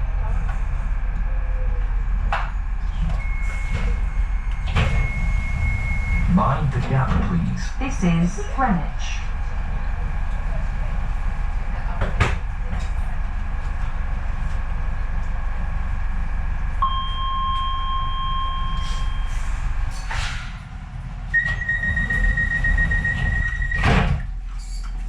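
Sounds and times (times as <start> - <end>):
train low hum: 0.0 - 25.0
train doors thudding shut: 21.3 - 24.4.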